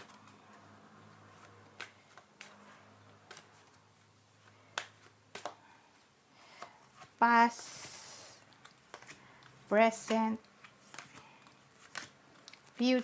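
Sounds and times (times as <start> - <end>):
cards snapping and clicking: 1.4 - 3.6, 4.6 - 5.6, 8.6 - 12.8.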